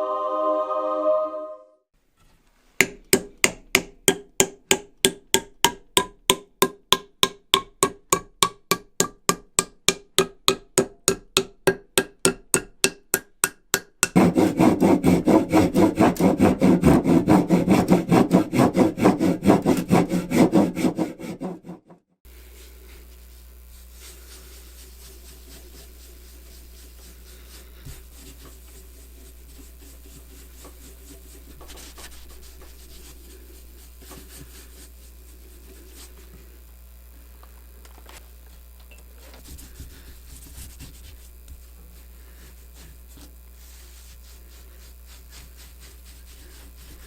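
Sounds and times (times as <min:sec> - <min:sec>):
rough rasping strokes: 0:14.2 - 0:21.8, 0:42.0 - 0:47.0
low steady hum: 0:22.3 - 0:47.0.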